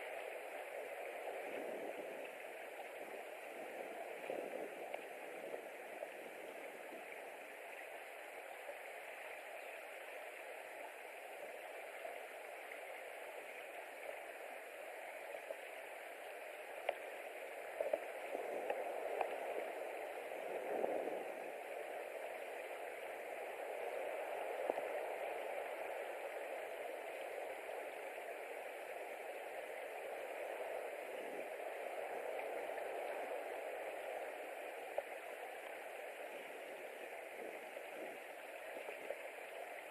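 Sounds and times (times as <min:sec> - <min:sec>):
faint clicks and taps: 0:16.8 - 0:17.0.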